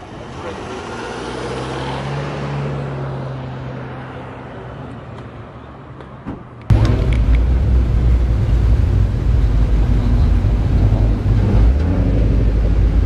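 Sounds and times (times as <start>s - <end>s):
car engine humming: 6.7s - 13.0s.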